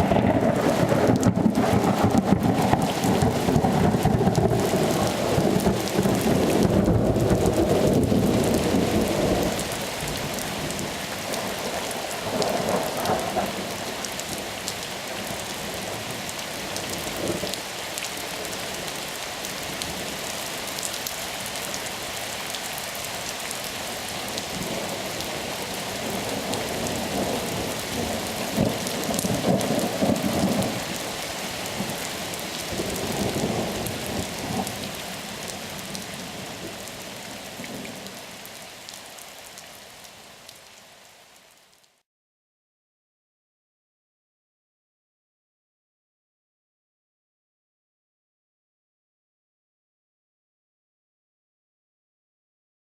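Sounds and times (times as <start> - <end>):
thunder rumbling: 0.0 - 13.9, 26.0 - 31.0
rain falling: 0.0 - 42.0.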